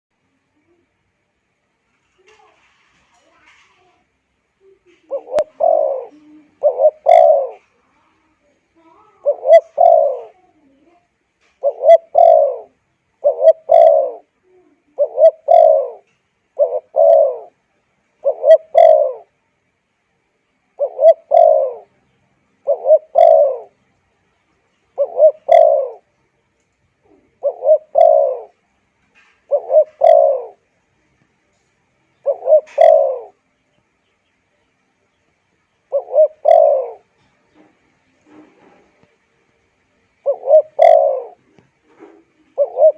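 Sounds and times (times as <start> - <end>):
dove cooing: 4.6 - 8.2, 8.9 - 10.6, 11.4 - 17.6, 18.2 - 19.3, 20.7 - 21.9, 22.6 - 23.8, 24.9 - 26.1, 27.0 - 28.6, 29.2 - 30.7, 31.6 - 33.4, 35.8 - 39.1, 40.1 - 42.9.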